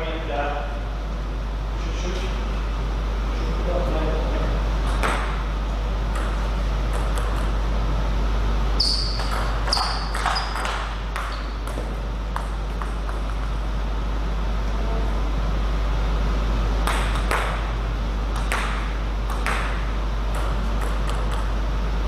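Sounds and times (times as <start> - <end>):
low hum: 0.0 - 22.0
ping pong ball clicking: 6.2 - 7.5, 9.2 - 13.5, 16.8 - 17.6, 18.4 - 21.5.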